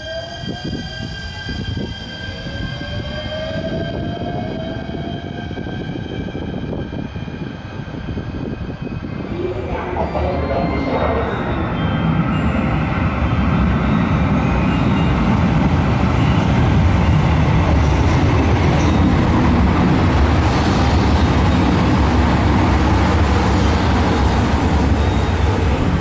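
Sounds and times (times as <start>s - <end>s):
rail running noise: 0.0s - 26.0s
diesel railcar engine drone: 9.1s - 26.0s.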